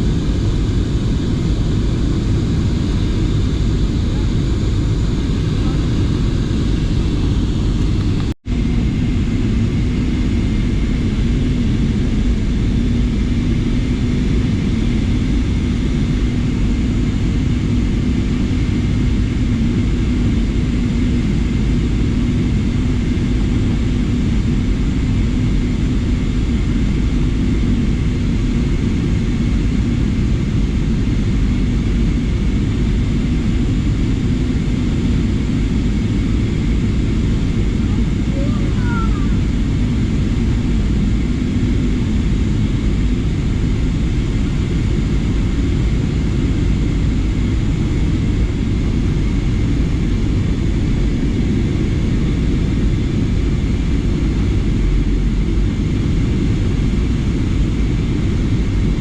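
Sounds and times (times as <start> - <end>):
airliner engine drone: 0.0 - 59.0
low hum: 21.2 - 59.0.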